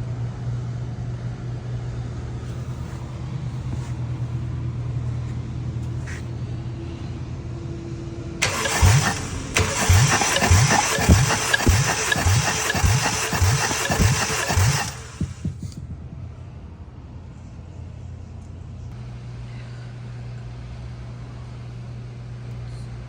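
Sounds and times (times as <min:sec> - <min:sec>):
starter motor cranking engine: 0:08.4 - 0:15.8.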